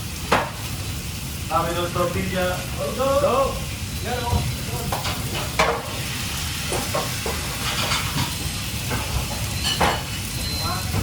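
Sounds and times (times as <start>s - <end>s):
food sizzling: 0.0s - 11.0s
pans and utensils clattering: 4.3s - 11.0s.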